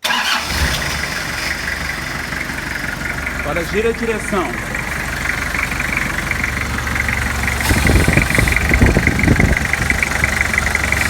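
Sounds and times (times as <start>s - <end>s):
engine idling: 0.0s - 11.0s
irregular low thumps: 4.6s - 11.0s.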